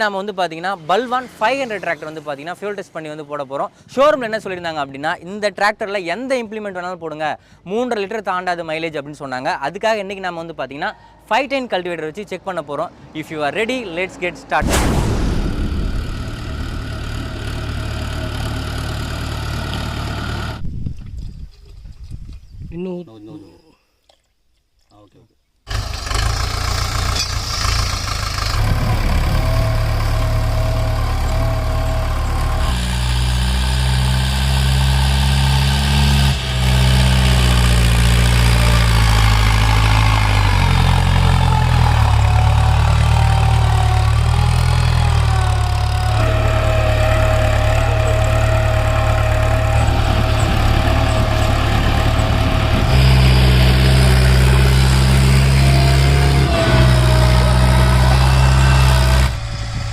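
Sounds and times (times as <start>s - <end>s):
tractor diesel engine running: 15.3s - 20.6s, 25.7s - 59.9s.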